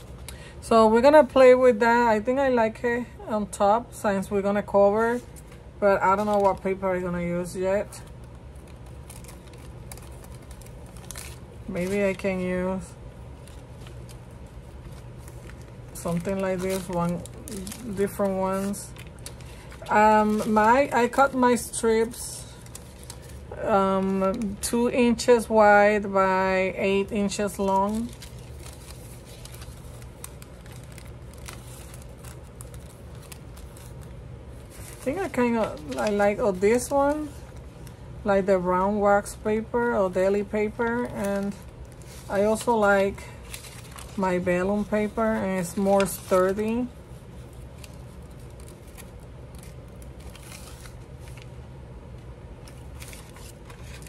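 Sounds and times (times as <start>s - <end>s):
steady low hum: 0.0s - 54.0s
paper rustling: 5.1s - 6.8s, 8.6s - 12.8s, 13.4s - 24.6s, 27.0s - 37.6s, 40.8s - 51.5s, 52.6s - 54.0s.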